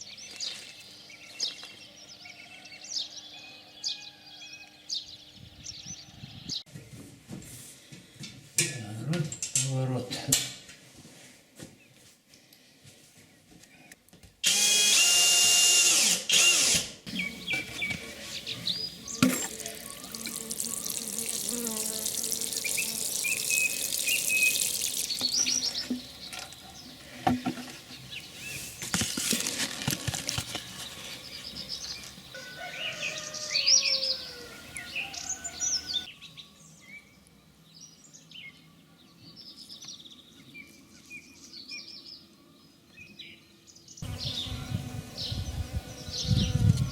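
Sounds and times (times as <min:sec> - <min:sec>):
birds singing: 0:00.0 - 0:06.7, 0:17.1 - 0:29.6, 0:30.4 - 0:46.9.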